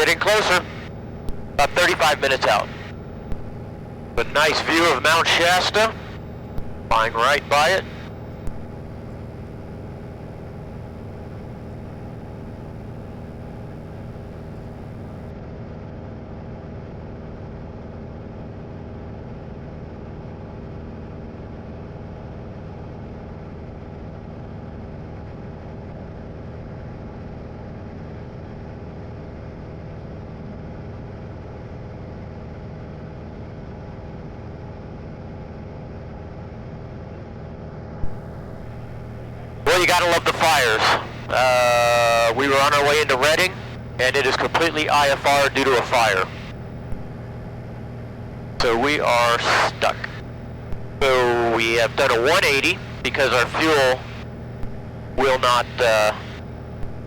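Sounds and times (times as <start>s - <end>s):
light aircraft engine droning: 0.0s - 15.3s, 38.0s - 57.0s.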